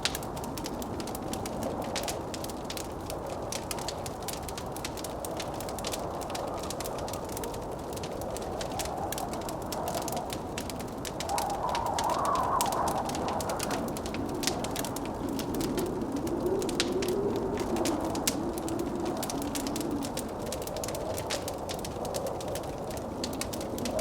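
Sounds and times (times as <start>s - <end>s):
blizzard wind howling: 0.0s - 24.0s
wood fire crackling and popping: 0.0s - 24.0s.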